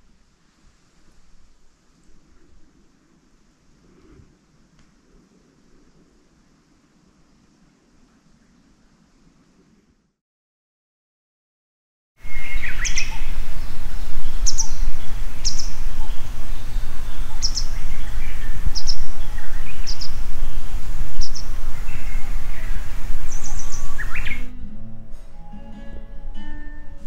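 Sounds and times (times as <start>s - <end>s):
wind rumble on microphone: 0.0s - 10.2s, 12.2s - 24.6s
wild birds calling: 12.2s - 24.6s.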